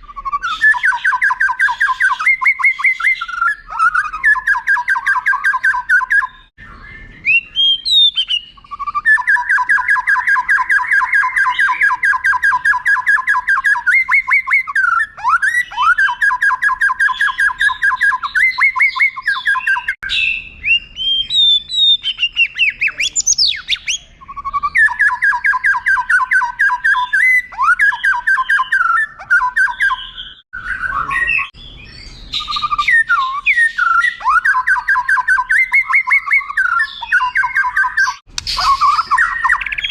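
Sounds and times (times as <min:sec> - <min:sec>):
songbird trilling and whistling: 0:00.0 - 0:39.9.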